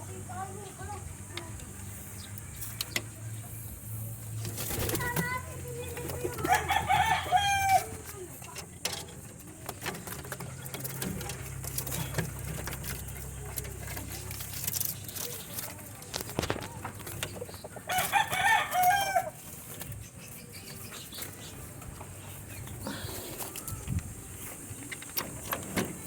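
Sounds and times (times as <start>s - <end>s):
rooster crowing: 6.4s - 7.9s, 17.9s - 19.4s.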